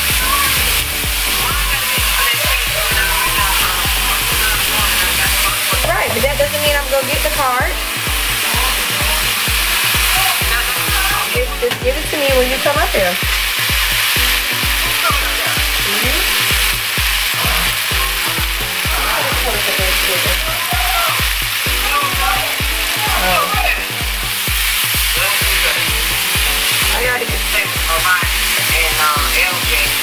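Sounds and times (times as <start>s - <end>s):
food sizzling in a skillet: 0.0s - 30.0s
music with bass beat: 0.0s - 30.0s
spatula stirring a pan: 6.8s - 12.2s, 12.9s - 20.4s, 24.0s - 29.8s.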